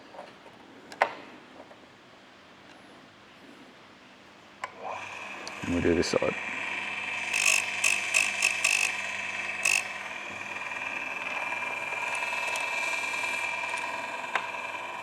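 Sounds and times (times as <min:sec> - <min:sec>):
chain sharpener whining: 0:06.4 - 0:15.0
short rasping bursts: 0:07.1 - 0:14.1.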